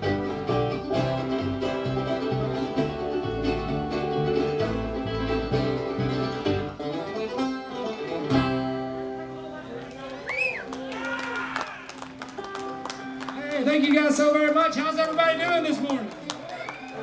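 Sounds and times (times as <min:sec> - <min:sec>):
guitar picking: 0:00.0 - 0:09.8, 0:12.0 - 0:14.2
banjo picking: 0:00.0 - 0:10.0, 0:12.2 - 0:13.9
bluegrass band playing: 0:00.0 - 0:15.9.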